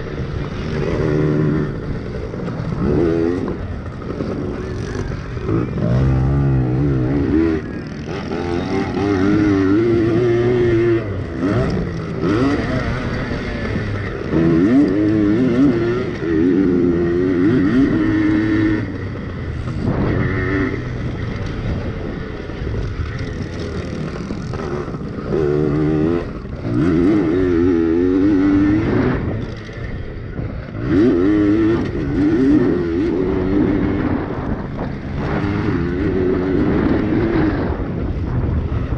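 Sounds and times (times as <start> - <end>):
pit bike engines revving: 0.0 - 38.9.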